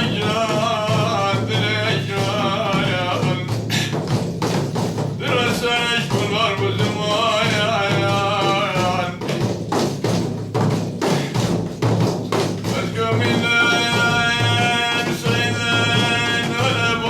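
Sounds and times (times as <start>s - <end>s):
devotional singing: 0.0s - 3.7s, 5.2s - 9.4s, 12.7s - 17.0s
drum strokes: 0.0s - 17.0s.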